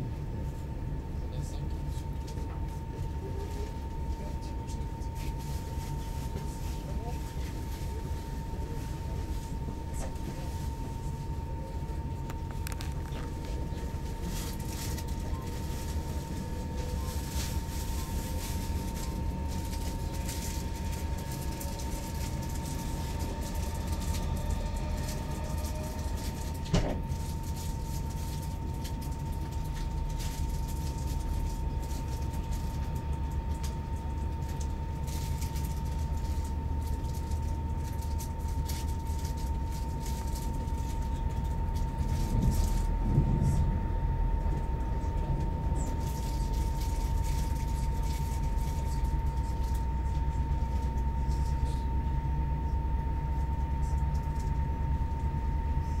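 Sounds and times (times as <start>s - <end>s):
train rumbling: 0.0s - 56.0s.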